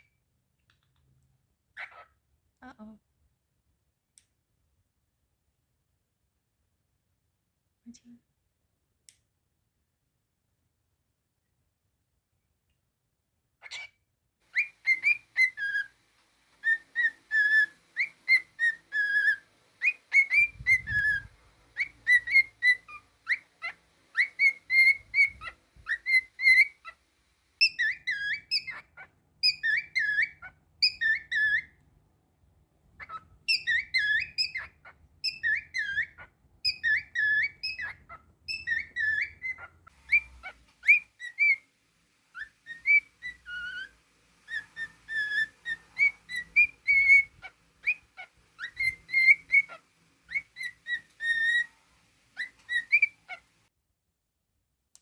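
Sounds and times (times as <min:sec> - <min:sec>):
cockatiel whistling a tune: 0:14.5 - 0:16.0, 0:16.6 - 0:27.0, 0:27.6 - 0:31.8, 0:33.0 - 0:41.6, 0:42.3 - 0:53.4.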